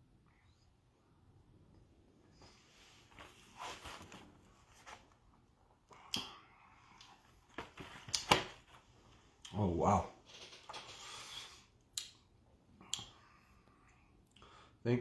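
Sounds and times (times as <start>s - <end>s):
mouth smacking and clicks: 5.9s - 6.4s, 12.8s - 13.2s.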